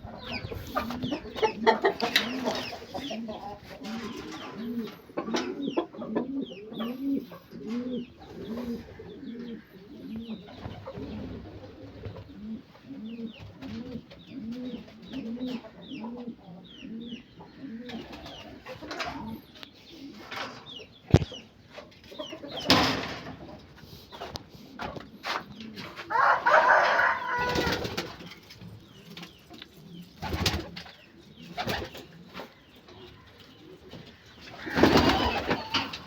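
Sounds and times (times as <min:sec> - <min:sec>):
low arched bird calls: 0:00.0 - 0:21.4, 0:28.9 - 0:36.0.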